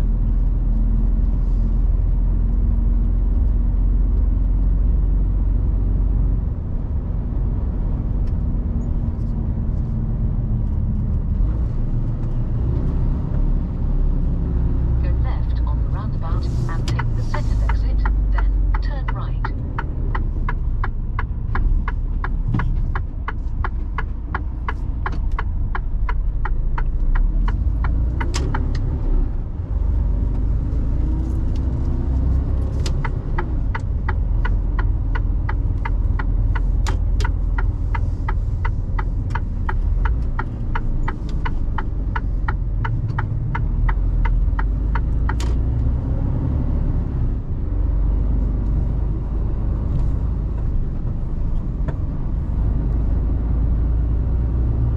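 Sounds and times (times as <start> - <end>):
road noise inside cab: 0.0 - 54.9
truck engine rumble: 0.0 - 54.9
turn signal ticking: 14.2 - 54.9.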